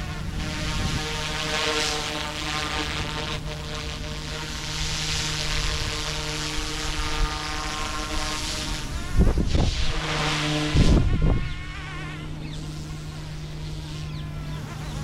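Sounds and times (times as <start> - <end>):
rc helicopter whine: 0.0 - 15.0
high wind rushing: 8.9 - 10.0, 10.7 - 11.6.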